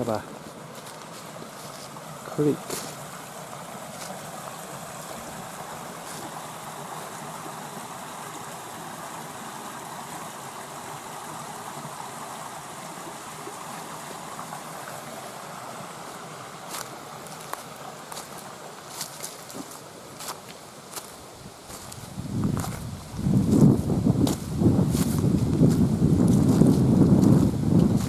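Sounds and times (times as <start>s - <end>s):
creek water flowing: 0.0s - 28.0s
footsteps on trail: 0.3s - 2.0s, 2.6s - 3.0s, 3.9s - 4.2s, 6.0s - 6.3s, 16.7s - 28.0s.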